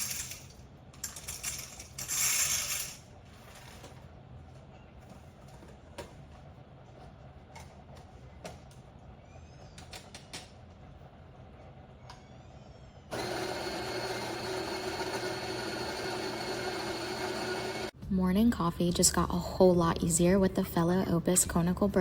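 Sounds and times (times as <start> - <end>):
coffee grinder motor whining: 13.1 - 17.9.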